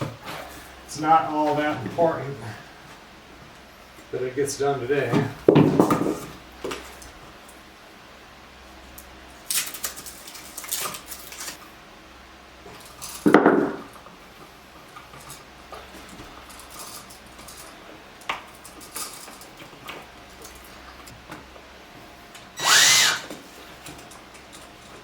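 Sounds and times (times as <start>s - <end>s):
small power tool whine: 22.3s - 23.8s.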